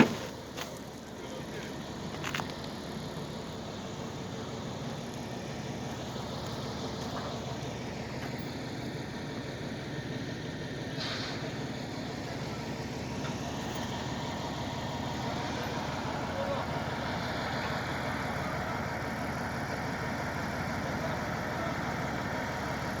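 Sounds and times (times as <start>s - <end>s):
engine idling: 0.0s - 23.0s
short hiss: 10.9s - 11.6s.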